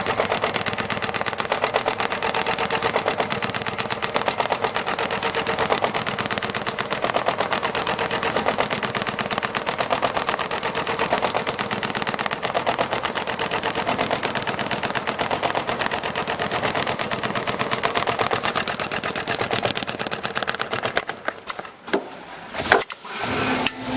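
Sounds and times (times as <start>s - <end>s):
machine clicks: 0.0s - 23.0s
sewing machine stitching leather: 0.0s - 23.8s.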